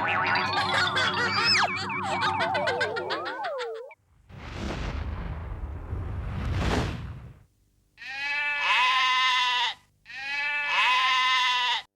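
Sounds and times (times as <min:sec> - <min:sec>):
farm animal calls: 0:00.0 - 0:03.8.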